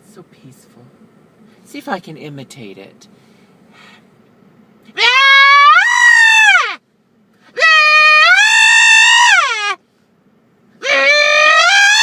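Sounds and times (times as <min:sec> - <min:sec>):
person imitating high-pitched screams: 0:05.0 - 0:06.8, 0:07.6 - 0:09.8, 0:10.8 - 0:12.0.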